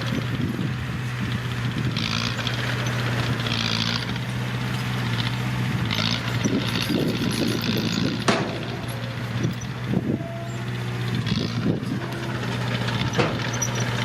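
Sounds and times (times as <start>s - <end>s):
bulldozer diesel engine running: 0.0s - 14.0s
sharp metal clank: 8.2s - 10.6s.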